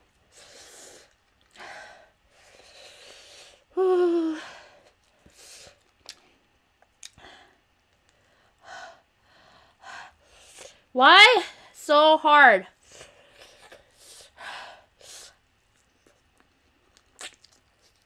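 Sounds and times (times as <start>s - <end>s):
woman breathing hard through mouth: 0.3s - 5.8s.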